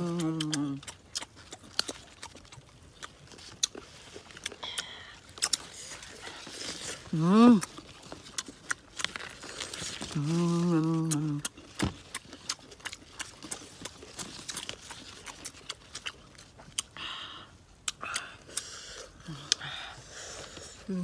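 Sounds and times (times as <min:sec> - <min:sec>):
person humming mmm: 0:00.0 - 0:00.9, 0:07.1 - 0:07.8, 0:10.1 - 0:11.5
chewing with wet crunches: 0:00.0 - 0:21.0.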